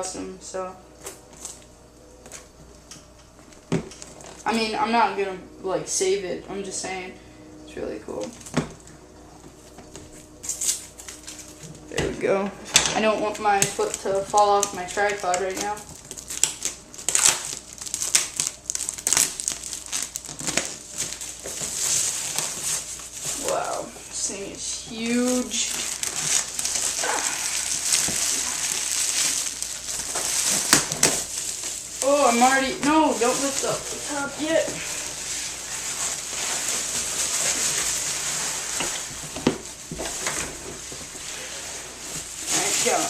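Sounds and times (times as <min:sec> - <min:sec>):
cardboard box crinkling and scraping: 0:24.9 - 0:43.0.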